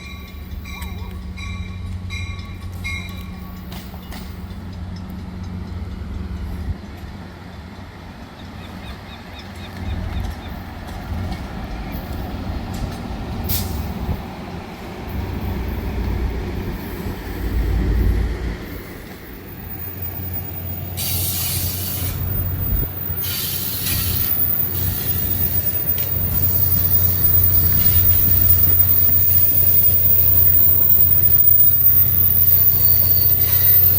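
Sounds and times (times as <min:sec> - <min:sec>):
train rumbling on rails: 0:00.0 - 0:33.9
high-pitched hiss or squeal: 0:18.7 - 0:33.9.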